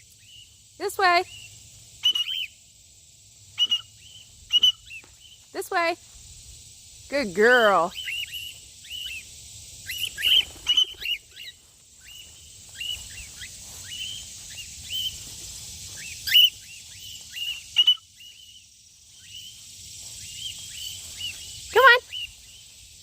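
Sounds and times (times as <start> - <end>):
steady high hiss: 0.0 - 23.0
cockatiels chirping: 16.0 - 18.0.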